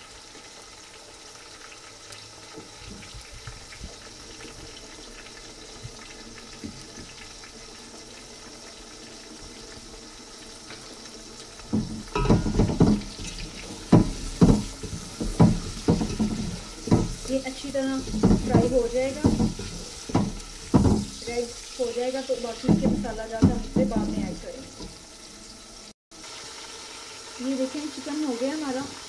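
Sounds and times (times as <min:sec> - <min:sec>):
food sizzling in a pot: 0:00.0 - 0:29.0
wooden spoon scraping a pot: 0:11.7 - 0:25.0.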